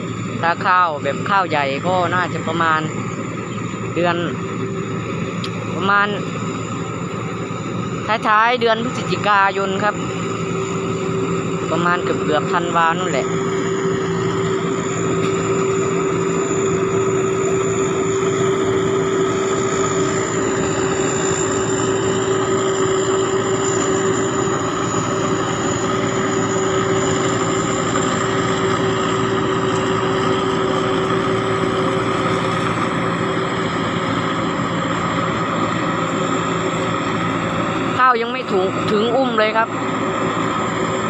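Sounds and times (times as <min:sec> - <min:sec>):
combine harvester engine drone: 0:00.0 - 0:41.0
high thin turbo whine: 0:00.0 - 0:41.0.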